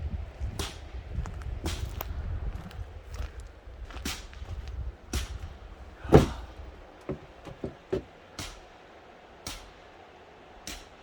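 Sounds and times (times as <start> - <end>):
axe splitting wood: 6.0 - 8.6
light knocks: 6.1 - 8.1.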